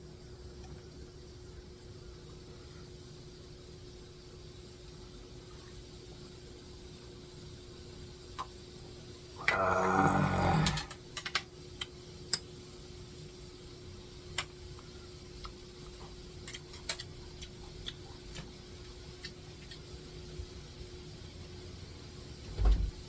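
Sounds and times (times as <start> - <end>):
faint hum: 0.0 - 22.9
small clicks and ticks: 10.9 - 12.5, 14.3 - 19.9.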